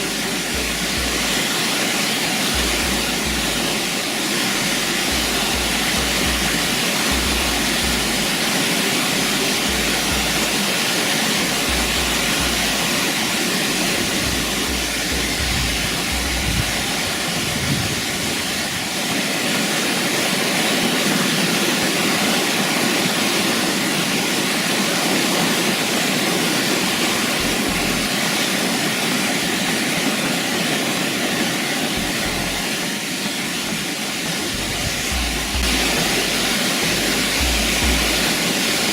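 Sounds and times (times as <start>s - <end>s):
waterfall rushing: 0.0s - 38.9s
low rumbles: 13.7s - 18.5s, 34.6s - 38.4s.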